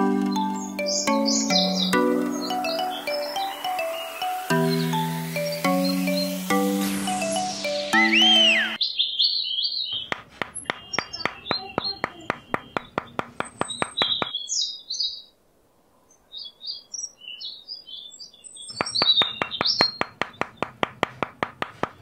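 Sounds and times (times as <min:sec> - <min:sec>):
birds chirping: 0:00.0 - 0:15.4, 0:16.1 - 0:21.2
small hammer tapping wood: 0:10.1 - 0:14.3, 0:18.8 - 0:22.0.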